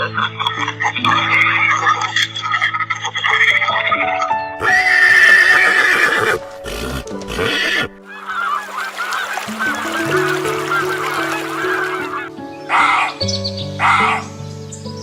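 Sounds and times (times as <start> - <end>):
animal's loud call: 4.6 - 13.1
quick wavering calls: 7.3 - 13.2.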